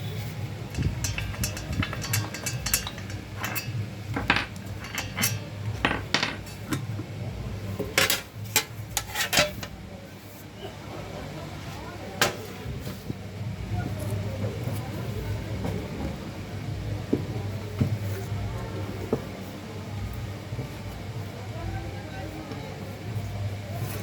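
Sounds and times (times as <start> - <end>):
steady low hum: 0.0 - 10.4
small hard objects clinking: 0.2 - 6.9.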